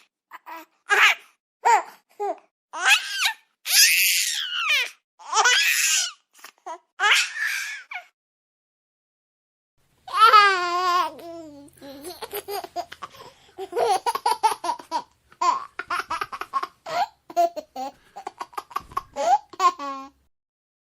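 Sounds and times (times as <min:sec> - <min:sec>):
baby laughing: 0:10.1 - 0:20.2.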